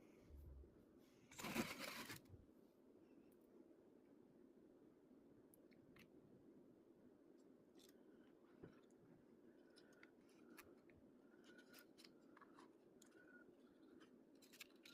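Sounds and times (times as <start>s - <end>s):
faint room hum: 0.0s - 14.9s
light clicks and scrapes: 9.6s - 14.9s.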